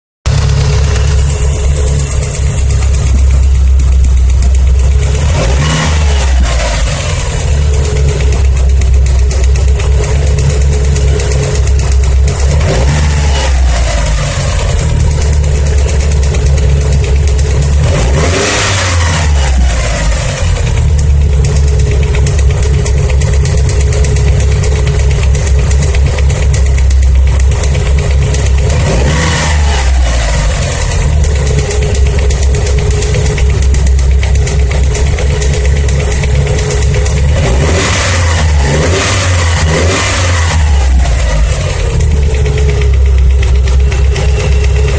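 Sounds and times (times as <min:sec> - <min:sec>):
car engine idling and revving: 0:00.2 - 0:44.9
engine tapping: 0:00.3 - 0:44.9.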